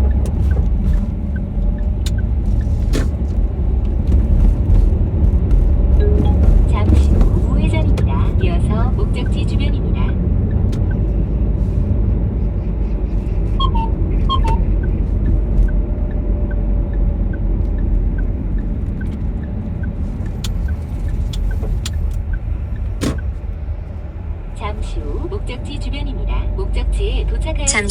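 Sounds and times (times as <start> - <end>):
car road and engine rumble: 0.0 - 27.9
turn signal ticking: 0.0 - 27.9
short chirping beeps: 13.6 - 15.0.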